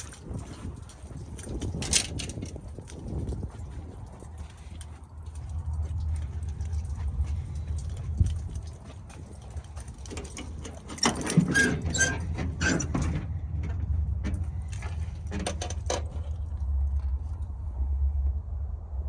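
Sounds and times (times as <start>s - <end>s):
footsteps crunching through mud and ice: 0.0s - 10.9s
steady low rumble: 0.0s - 11.0s, 12.2s - 19.0s.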